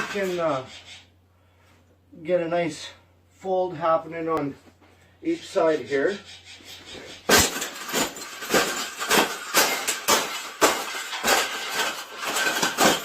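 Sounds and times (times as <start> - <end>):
wire cage clanking and rattling: 6.8 - 13.0.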